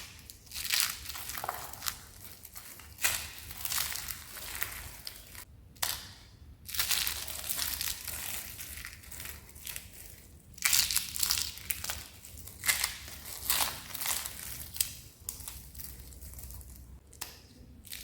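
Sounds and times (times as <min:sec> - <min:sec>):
dry soap crunching: 0:00.0 - 0:06.0, 0:06.7 - 0:17.2.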